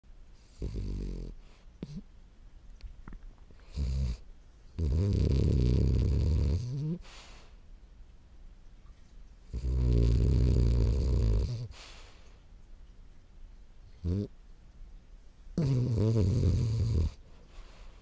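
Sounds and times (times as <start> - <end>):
dog snoring: 0.4 - 2.1, 3.6 - 4.2, 4.8 - 7.1, 9.5 - 11.9, 14.0 - 14.3, 15.6 - 17.2
dog breathing: 9.6 - 12.4.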